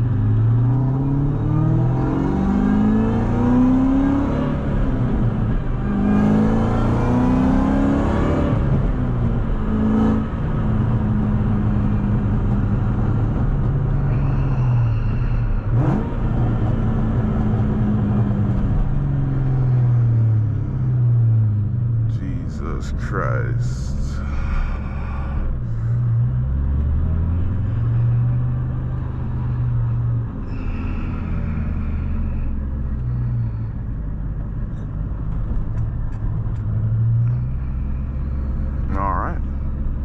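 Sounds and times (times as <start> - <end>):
supercharged engine revving: 0.0 - 12.2, 14.0 - 18.6.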